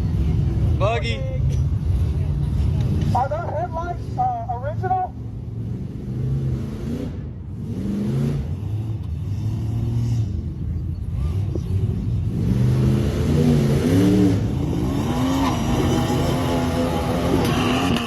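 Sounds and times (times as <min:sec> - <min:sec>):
off-road vehicle engine revving: 0:02.8 - 0:18.0.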